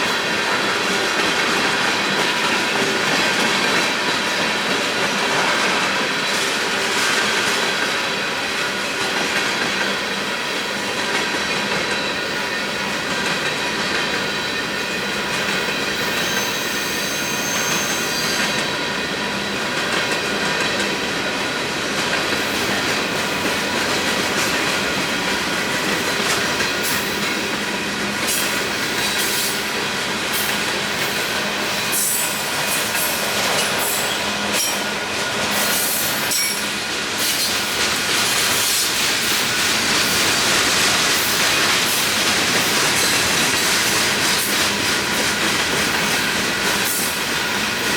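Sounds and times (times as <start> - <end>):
freight train rumble and clatter: 0.0 - 47.9
high wheel squeal: 15.9 - 18.8.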